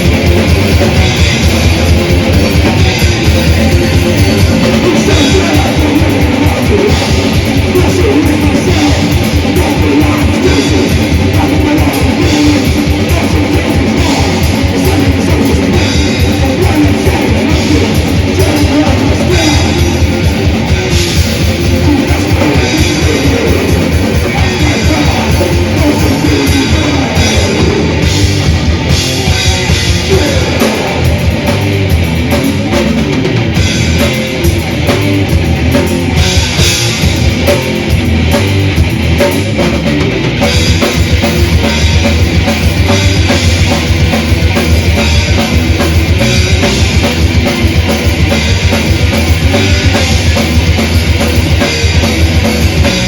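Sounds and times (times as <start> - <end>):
bass guitar: 0.0 - 53.0
distorted electric guitars: 0.0 - 53.0
heavy drum kit: 0.0 - 53.0.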